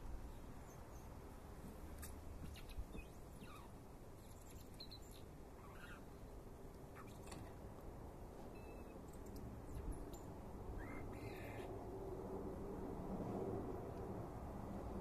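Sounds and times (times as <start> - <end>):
birds chirping and whistling: 2.4 - 6.1.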